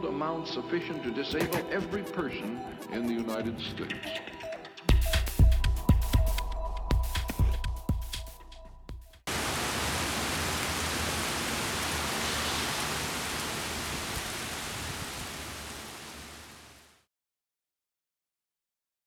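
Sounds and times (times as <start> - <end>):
steady rain hiss: 9.3 - 17.1.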